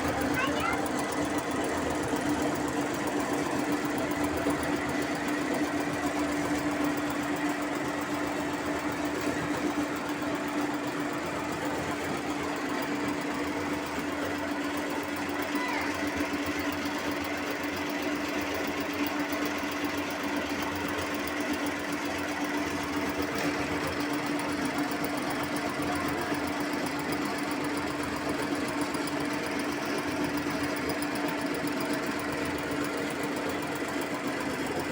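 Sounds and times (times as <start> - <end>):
sewing machine running: 0.0 - 34.9.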